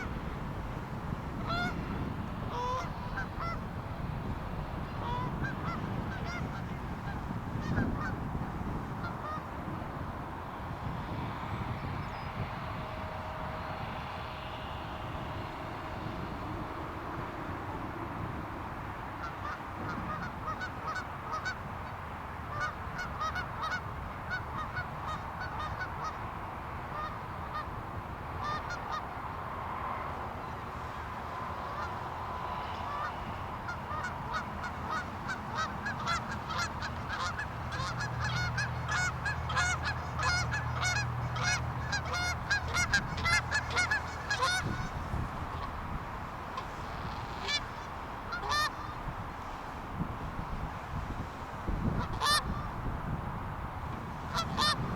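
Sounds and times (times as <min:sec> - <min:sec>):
geese honking: 0:00.0 - 0:03.8, 0:04.8 - 0:09.7, 0:19.2 - 0:26.3, 0:26.9 - 0:27.8, 0:28.4 - 0:29.4, 0:30.0 - 0:49.8, 0:51.8 - 0:52.9, 0:54.2 - 0:54.9.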